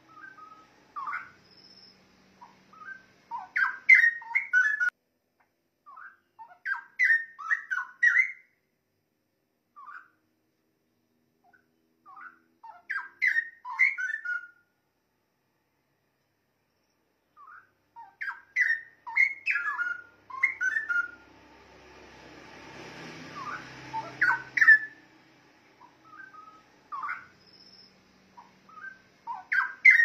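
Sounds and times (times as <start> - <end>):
bird warbling song: 0.0 - 4.9, 5.8 - 8.6, 9.8 - 10.2, 11.4 - 14.6, 16.8 - 21.3, 23.2 - 25.1, 25.8 - 30.0.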